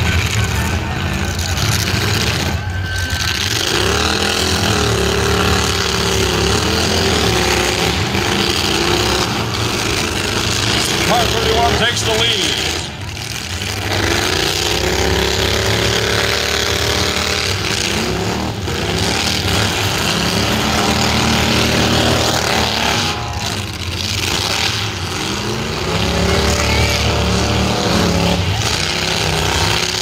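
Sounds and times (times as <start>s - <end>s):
car engines revving hard: 0.0s - 30.0s.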